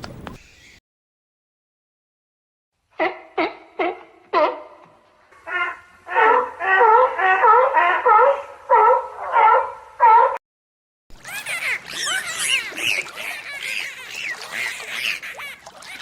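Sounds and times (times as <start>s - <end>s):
chorus of chirping animals: 0.4s - 0.8s, 11.2s - 16.0s
wavering animal call: 11.2s - 16.0s.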